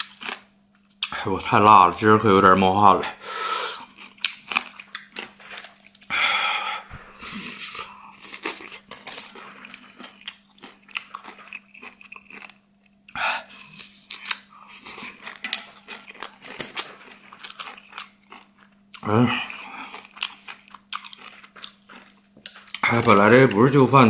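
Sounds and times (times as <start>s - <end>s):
faint steady hum: 0.0s - 24.0s
breathy bursts: 3.2s - 3.8s, 6.1s - 8.2s
chewing and biting: 3.8s - 6.1s, 7.2s - 23.6s.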